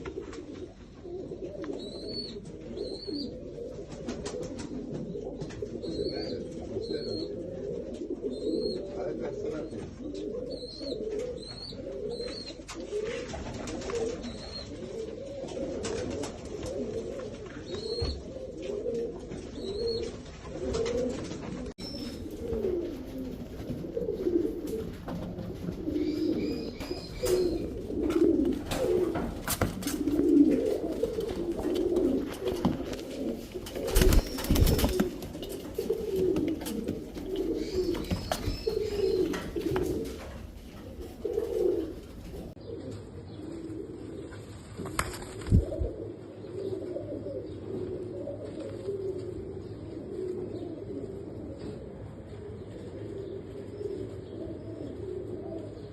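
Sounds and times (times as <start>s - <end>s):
pigeons cooing: 0.0s - 55.9s
small birds chirping: 1.7s - 3.4s, 5.1s - 7.4s, 8.2s - 12.7s, 14.2s - 14.8s, 21.8s - 45.3s.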